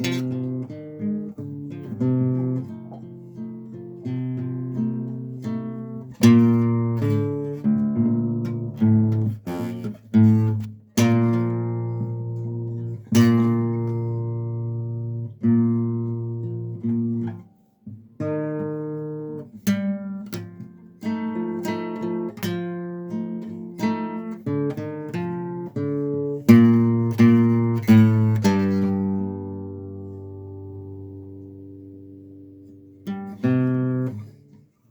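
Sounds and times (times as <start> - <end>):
acoustic guitar strummed chords: 0.0 - 34.7.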